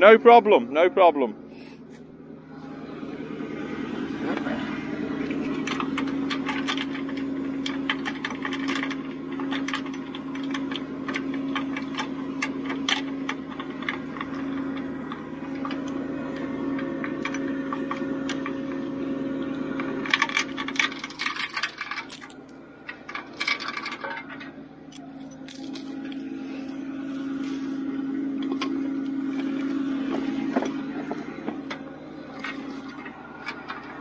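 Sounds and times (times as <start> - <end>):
metal fittings clinking and rattling: 20.1 - 24.1, 24.9 - 26.3, 27.0 - 27.9, 28.5 - 30.7, 32.1 - 33.6
steady hum: 24.6 - 34.0.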